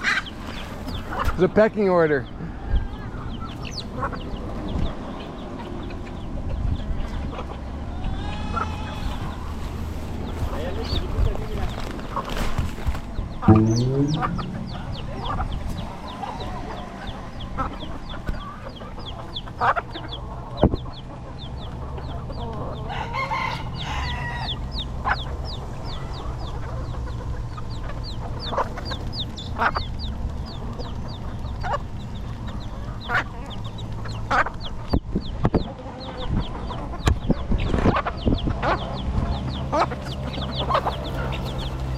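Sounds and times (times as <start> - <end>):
chicks peeping: 0.0 - 41.9
hens clucking: 0.0 - 41.9
rooster crowing: 22.9 - 24.6.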